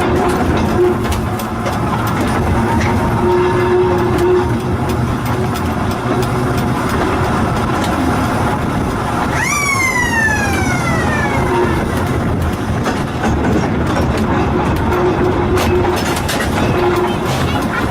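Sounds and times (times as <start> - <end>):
railway car rumbling: 0.0 - 17.9
loud whine sliding down: 9.2 - 12.5.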